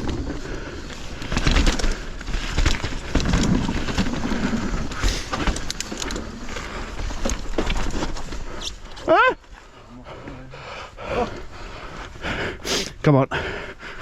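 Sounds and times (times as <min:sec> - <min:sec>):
bike rattling and knocking: 0:00.0 - 0:08.9
bike tyres on dirt: 0:00.0 - 0:12.6.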